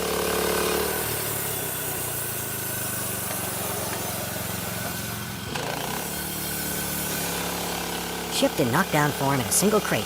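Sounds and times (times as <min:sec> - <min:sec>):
small gasoline engine running: 0:00.0 - 0:10.0.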